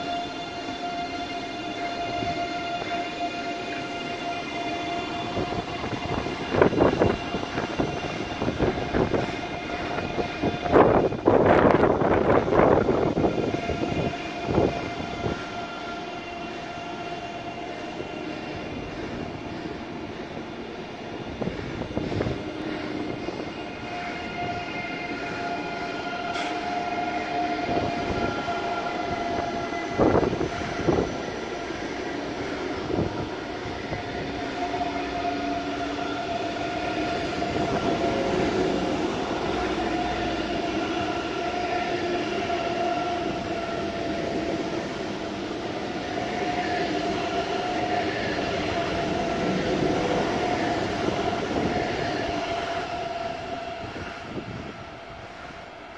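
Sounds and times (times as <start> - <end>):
electric train whine: 0.0 - 55.9
train rolling rumble: 0.0 - 55.9
sharp knocks from train wheels: 26.3 - 26.7.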